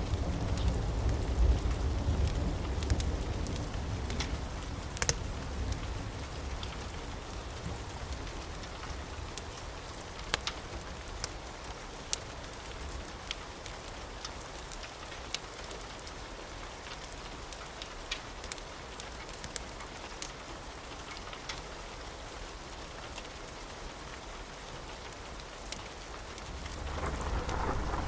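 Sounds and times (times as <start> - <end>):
steady rain falling: 0.0 - 28.0
thunder rumble: 26.5 - 28.0.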